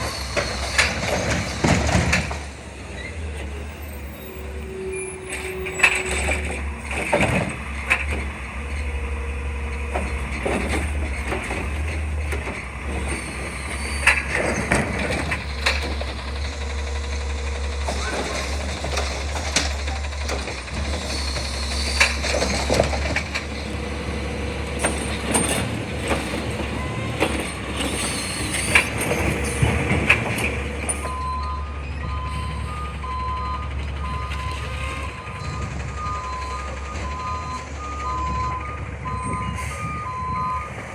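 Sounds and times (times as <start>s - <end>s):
clanks and bangs: 0.0s - 2.6s
garbage truck engine running: 0.0s - 40.9s
reversing beeper: 30.7s - 40.8s.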